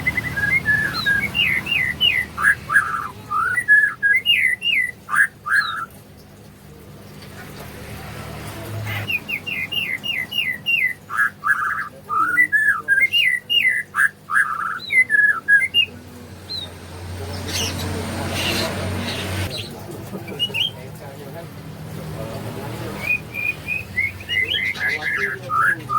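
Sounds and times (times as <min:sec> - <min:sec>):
bird singing whistled phrases: 0:00.0 - 0:05.9, 0:09.0 - 0:15.9, 0:23.0 - 0:25.9.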